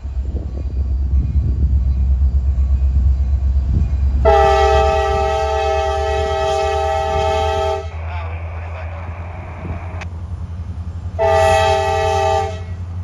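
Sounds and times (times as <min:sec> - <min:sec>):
locomotive rumbling: 0:00.0 - 0:13.0
locomotive air horn chord: 0:04.2 - 0:08.0, 0:11.2 - 0:12.8.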